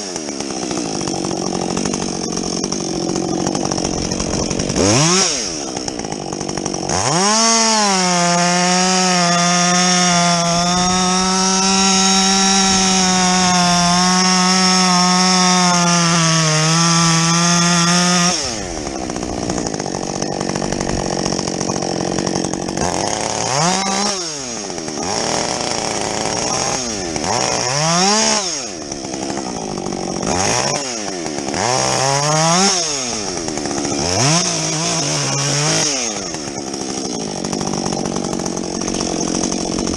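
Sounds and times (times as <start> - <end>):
chainsaw at full throttle: 0.0 - 39.9.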